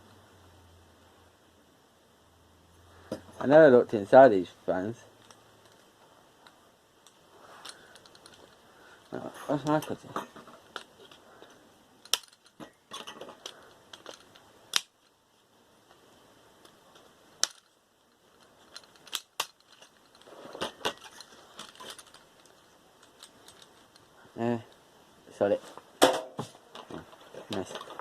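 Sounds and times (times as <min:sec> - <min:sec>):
clicks and clatter of small parts: 0:04.9 - 0:15.2, 0:15.8 - 0:24.8, 0:26.6 - 0:28.0.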